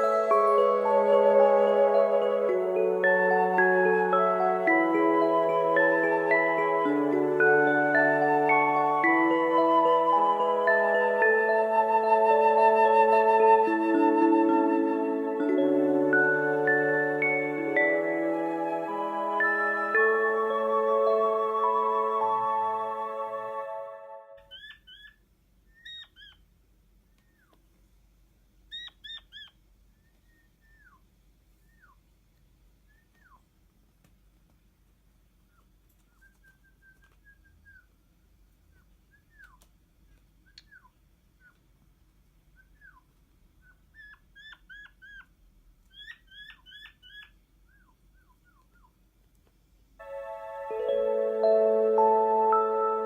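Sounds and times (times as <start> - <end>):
quail high chirps: 24.4 - 26.5, 27.1 - 27.6, 28.7 - 32.0, 32.8 - 33.6, 35.4 - 38.0, 38.6 - 39.7, 40.4 - 41.7, 42.5 - 49.0.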